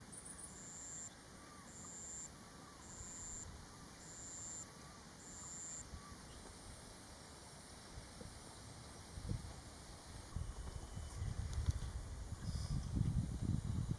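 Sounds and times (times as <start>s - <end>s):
faint short wavering calls: 0.1s - 6.5s
insect calling in high pulses: 0.2s - 6.4s
wind rumble on microphone: 9.0s - 13.9s.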